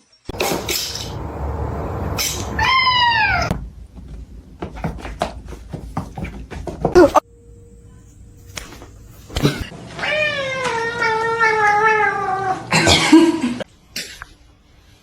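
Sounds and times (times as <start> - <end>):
cat yowling: 1.9 - 3.5, 10.0 - 12.7.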